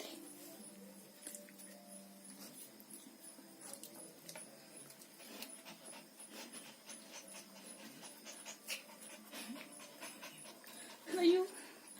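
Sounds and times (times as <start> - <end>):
dog panting: 4.3 - 11.9.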